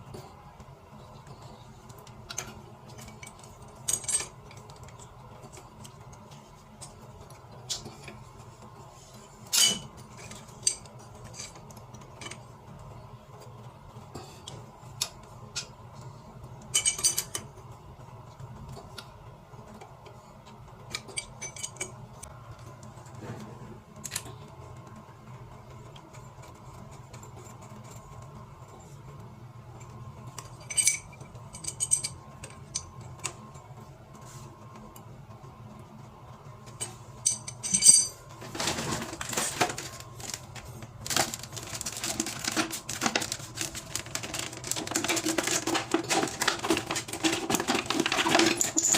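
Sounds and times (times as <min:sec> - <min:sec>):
metallic clinks of tools: 0:37.3 - 0:38.2.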